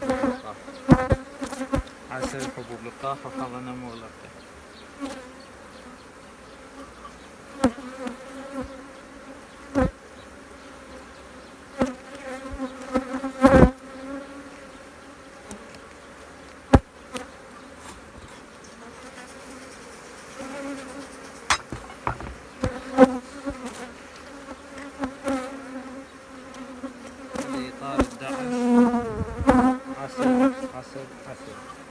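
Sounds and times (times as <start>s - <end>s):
honeybees buzzing: 0.0s - 31.9s
sharp knocks and clicks: 21.5s - 22.5s.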